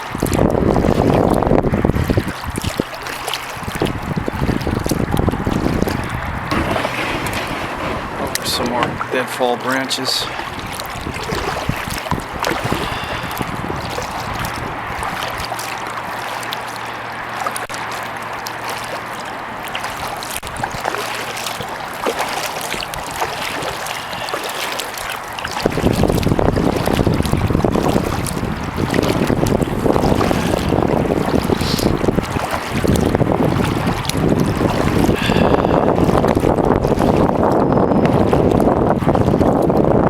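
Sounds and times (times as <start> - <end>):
wind buffeting microphone: 0.0 - 18.5, 19.2 - 40.0
paddle swishing water: 0.0 - 40.0
water drips and splashes: 0.0 - 40.0.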